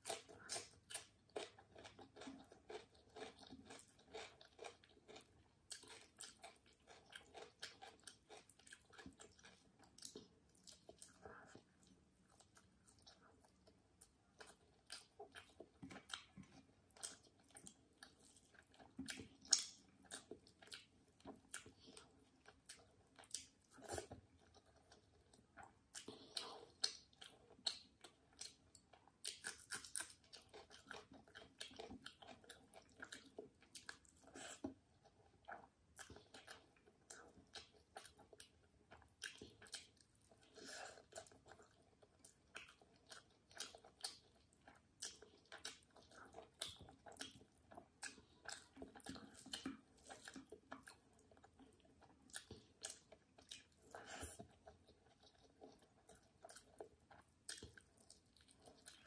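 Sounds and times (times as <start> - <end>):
chewing and mouth clicks: 0.0 - 59.0.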